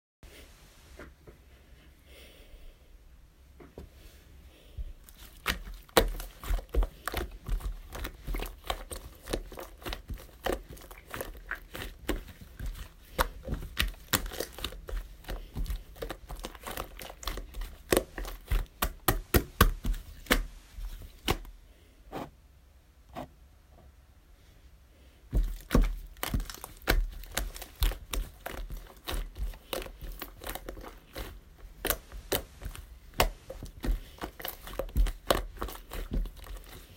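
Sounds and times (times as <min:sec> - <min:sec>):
crinkling handling noises: 0:04.9 - 0:21.6, 0:25.3 - 0:36.9.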